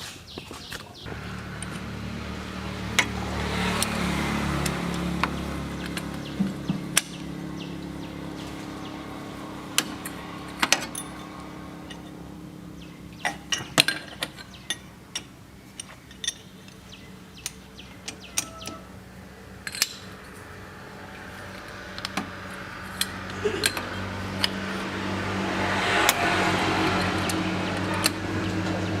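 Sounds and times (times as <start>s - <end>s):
metal tools clinking: 9.9s - 12.2s, 13.2s - 18.8s, 19.6s - 24.7s.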